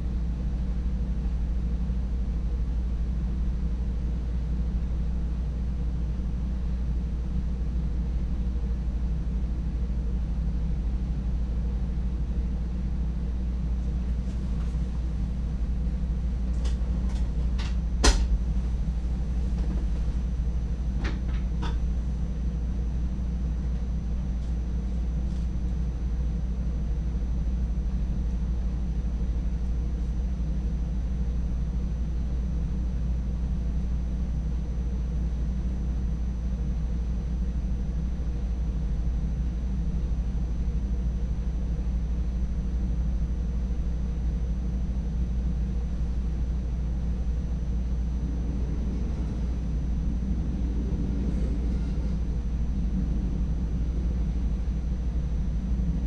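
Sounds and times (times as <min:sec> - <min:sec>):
train cab low rumble: 0:00.0 - 0:56.0
sharp clicks and knocks: 0:16.6 - 0:18.4.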